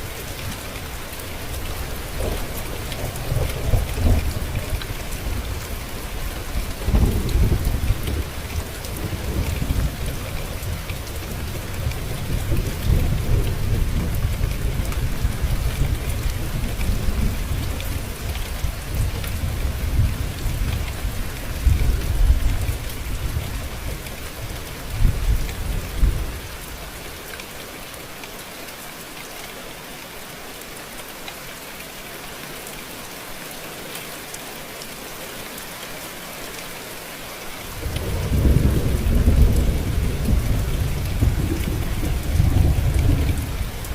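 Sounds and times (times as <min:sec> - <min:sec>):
steady rain falling: 0:00.0 - 0:43.9
rolling thunder: 0:37.8 - 0:43.9.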